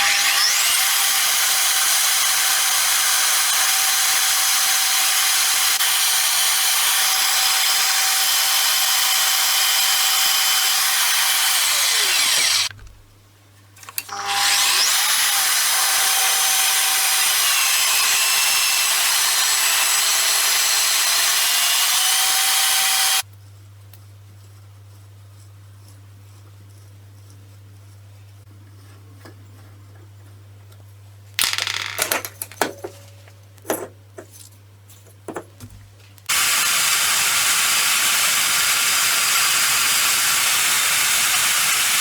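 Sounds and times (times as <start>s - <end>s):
electric power tool running: 0.0s - 12.8s, 14.1s - 23.2s, 36.3s - 42.0s.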